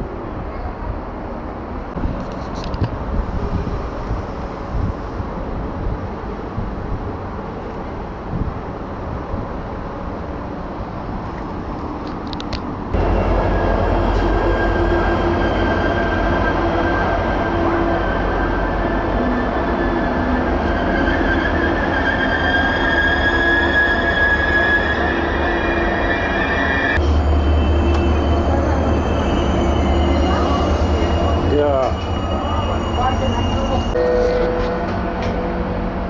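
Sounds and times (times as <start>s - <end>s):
passenger train rumble: 0.0s - 36.0s.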